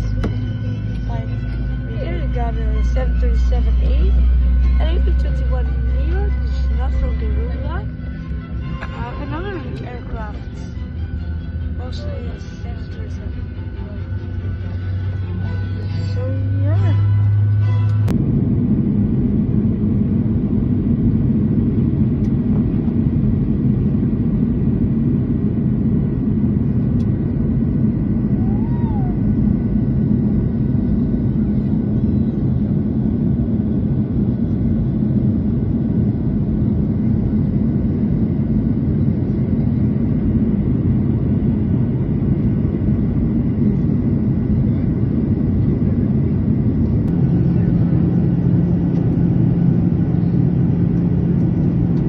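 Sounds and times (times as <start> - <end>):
airliner cabin engine rumble: 0.0 - 52.0.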